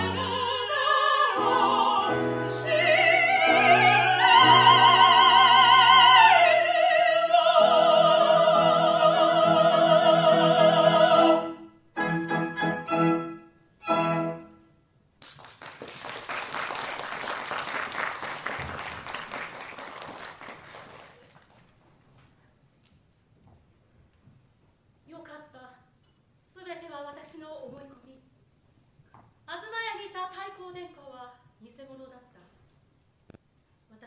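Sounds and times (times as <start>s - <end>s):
operatic voice singing: 0.0s - 11.5s
orchestra playing: 9.5s - 14.7s
applause: 15.2s - 21.8s.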